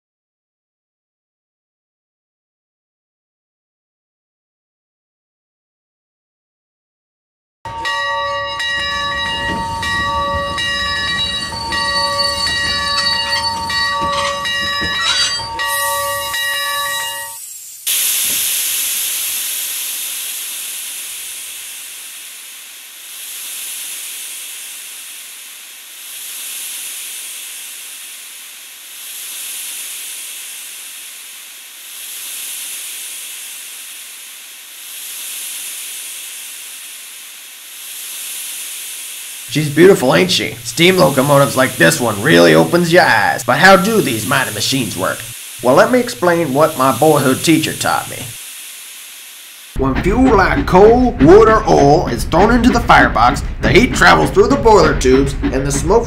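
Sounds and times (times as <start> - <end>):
steam whistle chord: 7.7 - 19.4, 39.5 - 48.4
loud steam hissing: 7.7 - 56.0
low rumble: 49.8 - 56.0.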